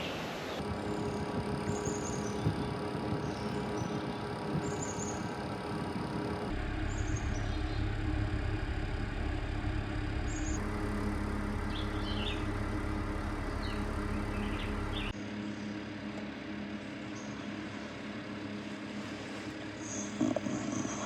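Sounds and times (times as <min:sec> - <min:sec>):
insect chirps: 0:00.0 - 0:15.8
generator humming: 0:00.6 - 0:21.0.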